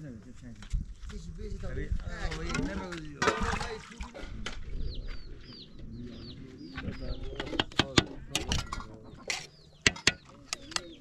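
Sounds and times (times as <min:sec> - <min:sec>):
bird peeping: 0:04.6 - 0:11.0
metal ladle clinking on pot: 0:07.4 - 0:10.8.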